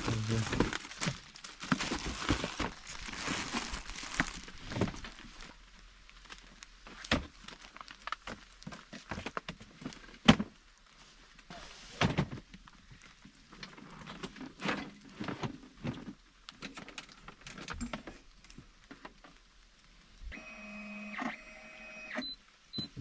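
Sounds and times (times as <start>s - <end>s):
knocks and clatter of handling: 6.9s - 10.6s, 13.5s - 19.4s.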